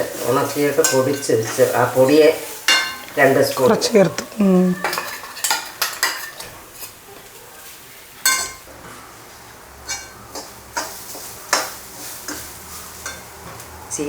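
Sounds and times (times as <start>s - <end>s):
spoon scraping a pan: 0.0s - 7.0s, 9.8s - 13.6s.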